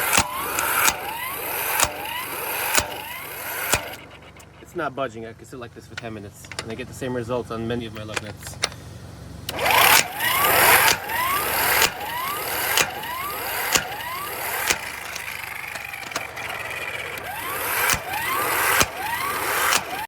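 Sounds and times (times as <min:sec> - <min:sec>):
impact wrench knocks: 0:00.0 - 0:04.6, 0:05.9 - 0:06.8, 0:09.8 - 0:20.0
impact wrench whining: 0:00.0 - 0:06.8, 0:07.8 - 0:20.0.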